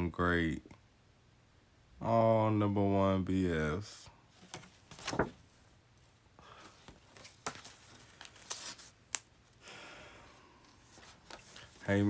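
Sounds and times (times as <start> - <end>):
paper rustling and crinkling: 4.3 - 9.6, 10.6 - 12.0.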